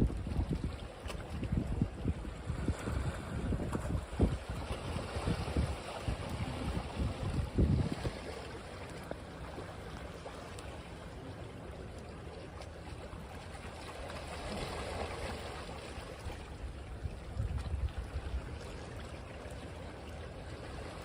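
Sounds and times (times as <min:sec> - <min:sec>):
wind buffeting microphone: 0:00.0 - 0:08.4, 0:16.7 - 0:18.6
surf waves washing: 0:00.0 - 0:21.0.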